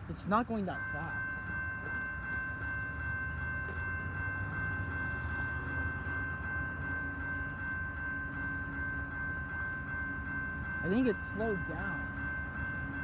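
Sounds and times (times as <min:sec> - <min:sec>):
freight train rumbling past: 0:00.0 - 0:13.0
high-pitched ringing: 0:00.0 - 0:13.0.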